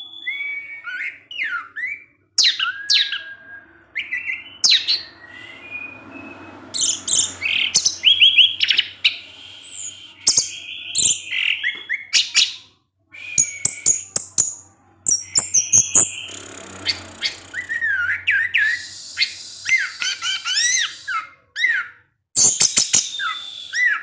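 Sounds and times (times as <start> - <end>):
thrush singing: 13.3 - 21.4.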